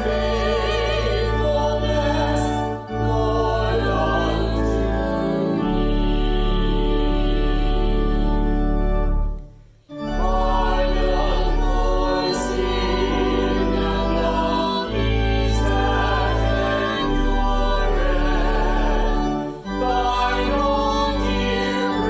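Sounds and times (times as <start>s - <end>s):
voices singing: 0.0s - 8.8s, 10.0s - 22.0s
organ chords: 0.0s - 22.0s.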